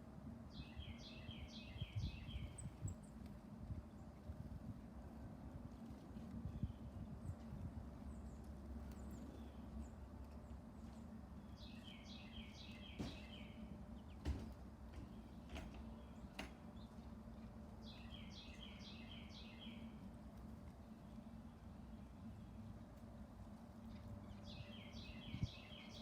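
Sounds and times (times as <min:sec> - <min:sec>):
steady low hum: 0:00.0 - 0:26.0
bird singing whistled notes: 0:00.5 - 0:02.8, 0:11.5 - 0:13.6, 0:17.8 - 0:19.8, 0:24.4 - 0:26.0.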